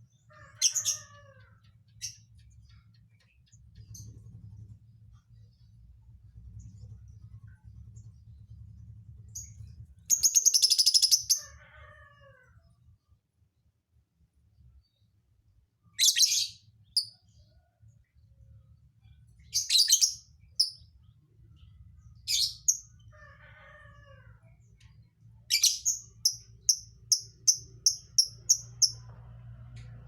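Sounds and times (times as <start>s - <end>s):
lovebird harsh chirps: 10.1s - 11.4s, 25.6s - 29.0s.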